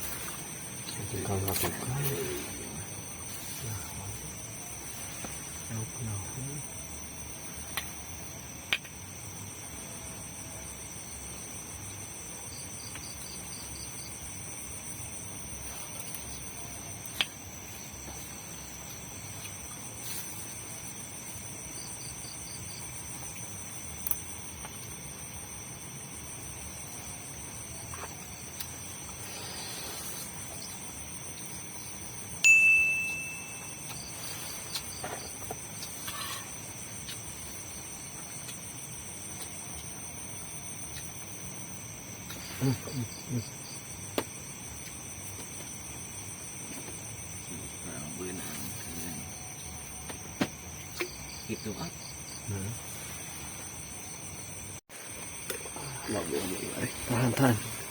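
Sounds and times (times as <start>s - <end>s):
crickets chirping: 0.0s - 57.9s
bright ringing tone: 32.4s - 34.4s.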